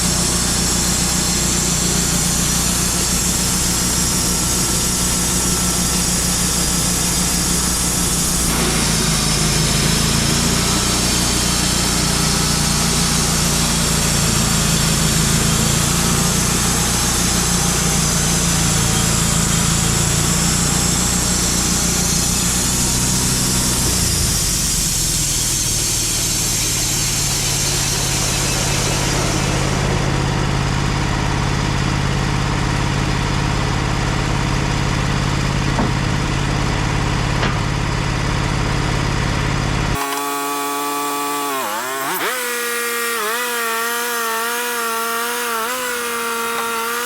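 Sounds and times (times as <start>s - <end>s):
sawmill engine running: 0.0s - 47.0s
high hiss of blade cutting: 0.6s - 12.0s, 21.6s - 29.9s, 40.0s - 47.0s.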